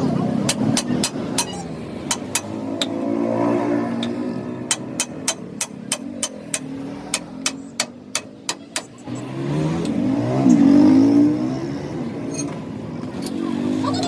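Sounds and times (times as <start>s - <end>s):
vehicle engine revving: 0.0s - 5.3s, 8.8s - 14.0s.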